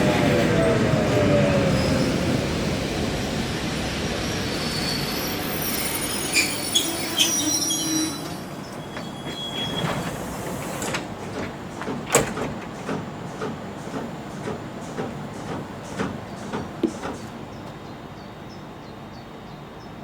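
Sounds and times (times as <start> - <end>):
train rolling noise: 0.0 - 20.0
wheel squeals: 4.4 - 10.8.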